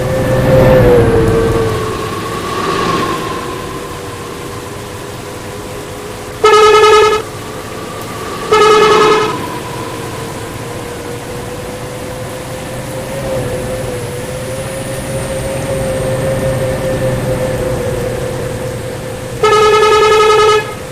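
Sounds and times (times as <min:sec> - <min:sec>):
steady drone: 0:00.0 - 0:20.9
bus air horn blasts: 0:06.4 - 0:11.3, 0:19.4 - 0:20.9.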